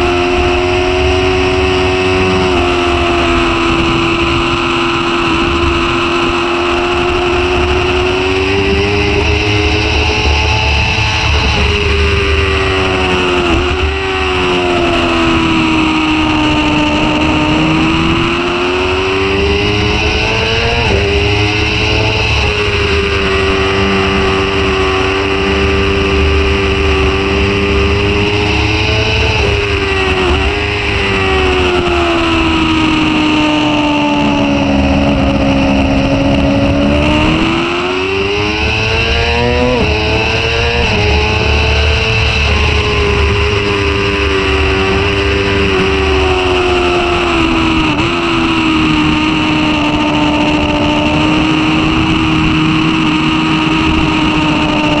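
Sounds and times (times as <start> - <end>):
motorcycle engine running hard: 0.0 - 55.0
wind rushing over microphone: 0.0 - 55.0.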